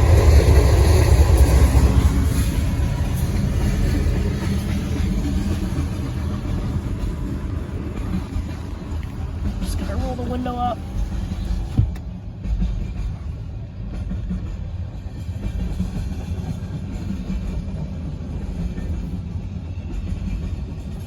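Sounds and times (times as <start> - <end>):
muffled diesel locomotive rumble: 0.0 - 21.0.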